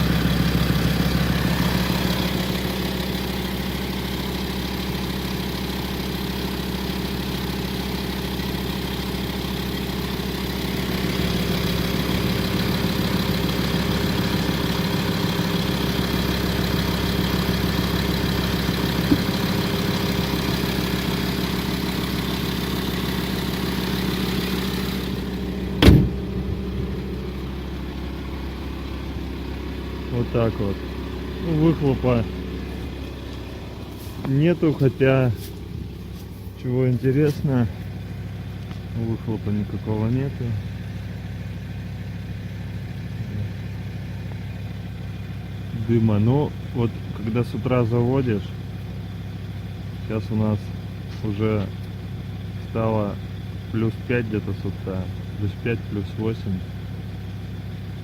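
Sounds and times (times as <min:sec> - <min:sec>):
diesel engine idling with rattle: 0:00.0 - 0:58.0
sharp engine knock: 0:18.9 - 0:20.0, 0:25.7 - 0:26.8.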